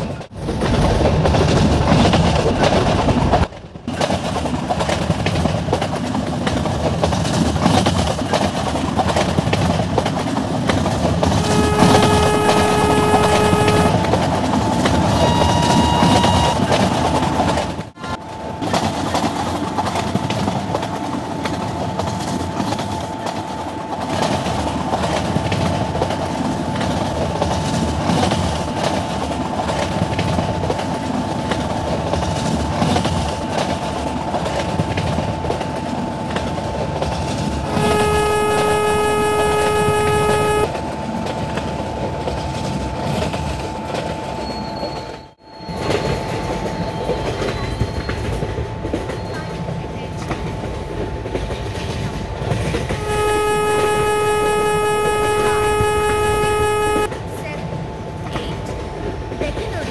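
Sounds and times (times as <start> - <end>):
train rumbling and clattering: 0.0 - 59.9
train horn: 11.2 - 17.0, 37.6 - 40.8, 52.8 - 57.2
short high horn note: 11.4 - 14.1, 15.1 - 16.8, 37.6 - 40.7, 52.9 - 57.1.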